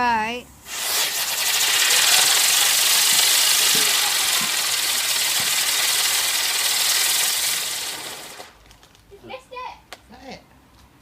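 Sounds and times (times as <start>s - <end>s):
firework hissing: 0.6s - 8.6s.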